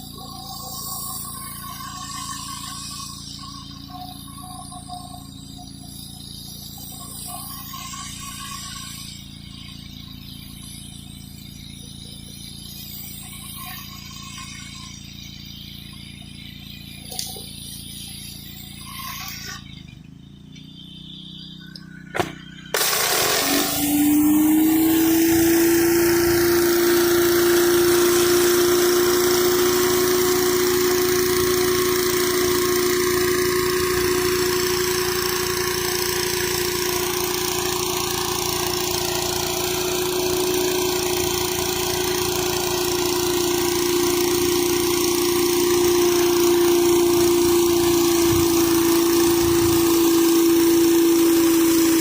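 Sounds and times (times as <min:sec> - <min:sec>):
pressure washer engine running: 0:00.0 - 0:52.0
hiss of spraying water: 0:22.8 - 0:52.0.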